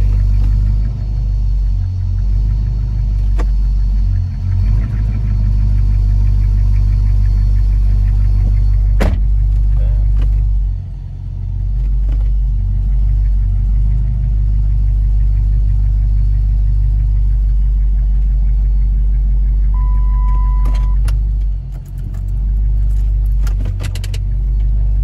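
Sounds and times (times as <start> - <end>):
car engine idling: 0.0 - 25.0
steady beep: 19.4 - 21.0.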